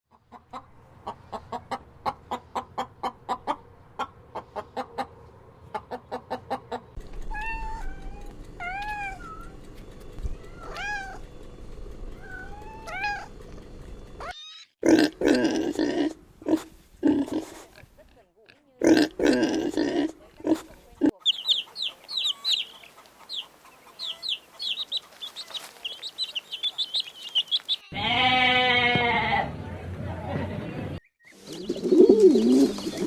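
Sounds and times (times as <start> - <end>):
drawn-out rising and falling calls: 10.4 - 11.3, 21.2 - 28.7
loud harsh animal calls: 27.7 - 29.5.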